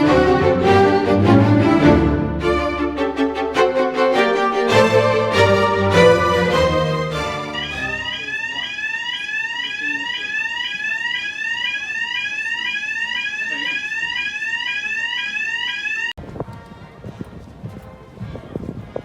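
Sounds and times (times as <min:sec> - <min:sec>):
street noise: 0:00.0 - 0:19.0
electronic alarm rising sweep tone: 0:06.0 - 0:16.2.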